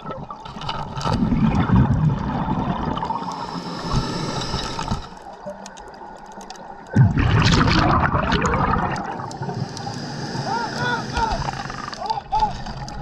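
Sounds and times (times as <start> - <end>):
exhaled bubbles rushing underwater: 0.0 - 3.4, 6.9 - 13.0.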